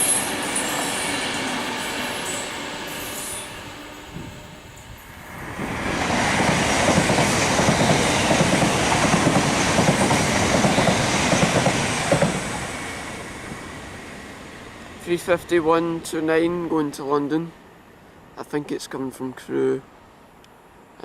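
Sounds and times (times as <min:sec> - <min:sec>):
train wheels clattering on rails: 0:00.0 - 0:13.1.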